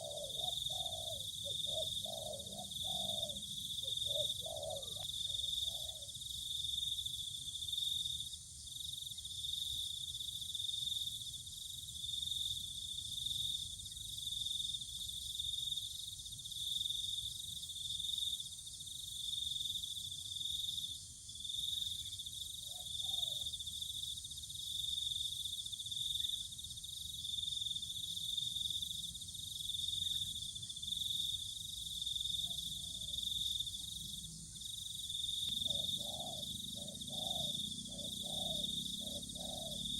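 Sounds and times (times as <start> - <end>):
faint low bird calls: 0.0 - 6.1, 22.6 - 23.5, 35.5 - 39.9
high insect chirring: 27.5 - 39.9.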